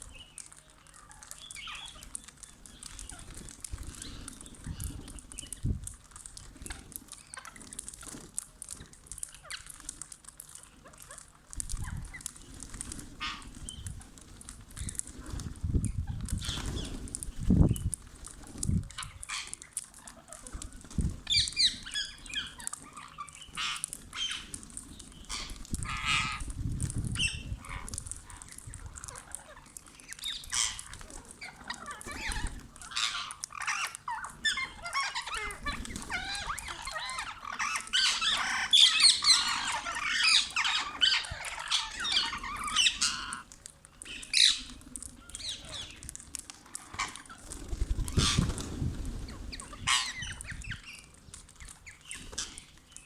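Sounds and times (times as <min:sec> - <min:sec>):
parakeets squawking: 0:00.0 - 0:05.7, 0:13.0 - 0:14.1, 0:18.7 - 0:51.1.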